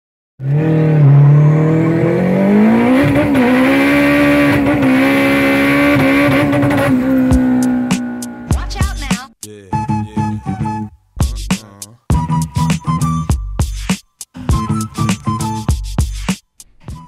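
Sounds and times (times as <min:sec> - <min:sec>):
car engine revving: 0:00.4 - 0:08.8.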